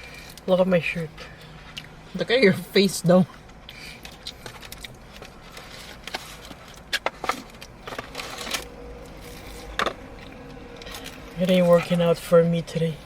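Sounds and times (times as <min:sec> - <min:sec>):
faint low hum: 0:00.0 - 0:13.0
crackles of biting and chewing food: 0:01.3 - 0:02.2, 0:03.3 - 0:12.0.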